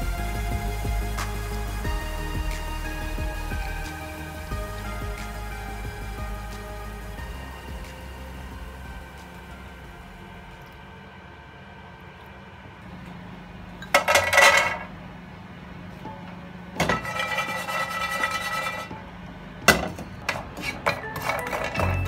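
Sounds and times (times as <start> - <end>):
faint background music: 0.0 - 11.8, 18.8 - 22.0.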